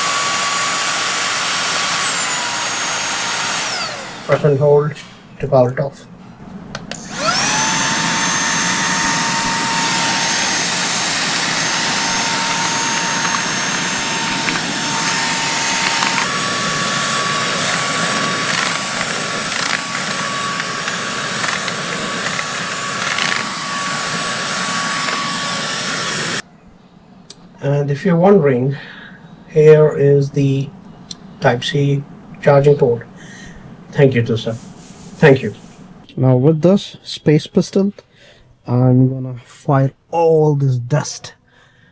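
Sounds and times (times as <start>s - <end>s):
handheld vacuum motor whine: 0.0s - 4.6s, 6.7s - 26.4s.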